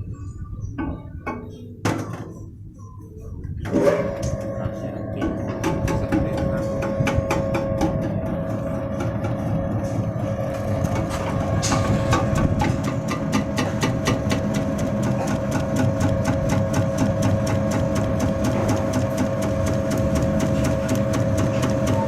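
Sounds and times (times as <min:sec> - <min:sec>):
motor hum: 0:03.7 - 0:22.0
rapid machine clicking: 0:05.6 - 0:22.0.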